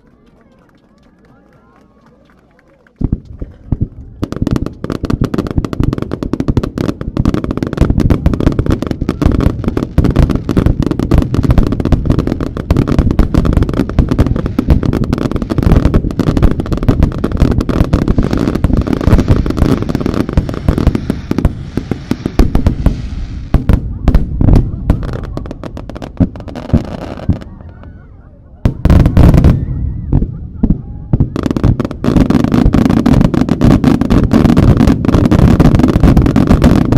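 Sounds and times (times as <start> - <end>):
fireworks launching and bursting: 3.0 - 28.0, 28.6 - 36.9
fireworks hiss: 7.3 - 27.4.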